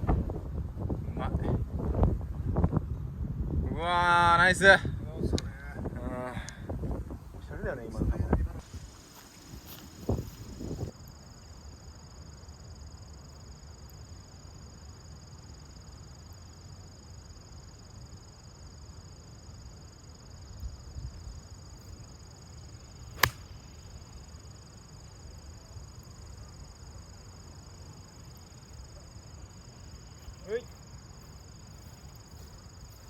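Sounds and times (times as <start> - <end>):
wind buffeting microphone: 0.0 - 3.9, 4.8 - 8.9, 9.5 - 10.9
golf club striking ball: 23.2 - 23.6.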